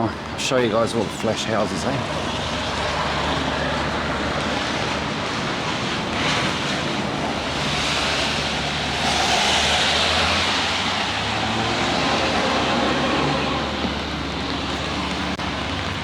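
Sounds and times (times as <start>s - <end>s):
rain falling on an umbrella: 1.4s - 16.0s.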